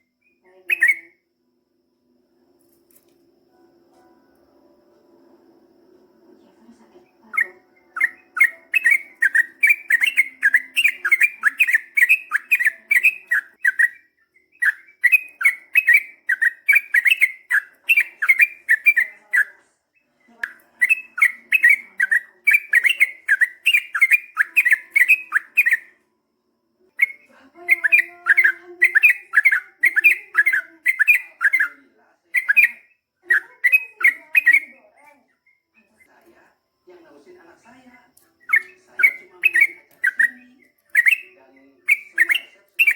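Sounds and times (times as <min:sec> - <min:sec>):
bird chirping rapidly: 0:00.0 - 0:01.2, 0:07.2 - 0:19.6, 0:20.4 - 0:25.9, 0:27.0 - 0:35.8, 0:38.4 - 0:42.9.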